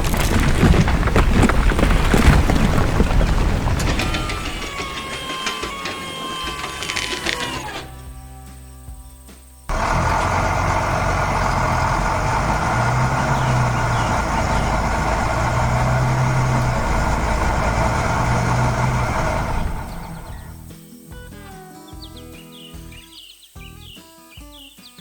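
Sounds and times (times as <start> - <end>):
heavy vehicle engine running: 0.0 - 8.4, 9.7 - 20.7.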